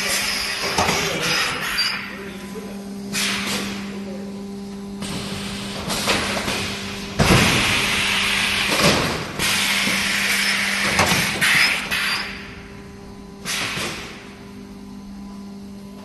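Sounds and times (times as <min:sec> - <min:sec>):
machine electrical hum: 0:00.0 - 0:16.0.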